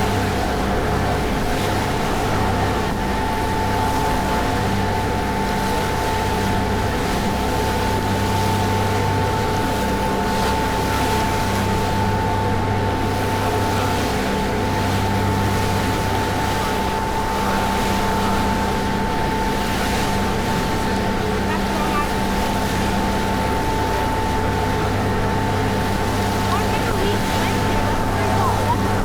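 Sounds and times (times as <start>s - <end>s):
rushing water: 0.0s - 29.0s
ferry engines droning: 11.0s - 29.0s.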